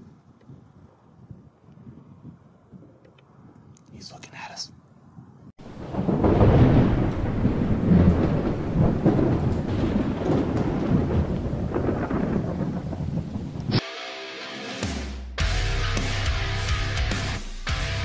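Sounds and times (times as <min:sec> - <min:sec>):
steady rain: 0:05.6 - 0:13.8
thunder rumbling: 0:05.6 - 0:13.8.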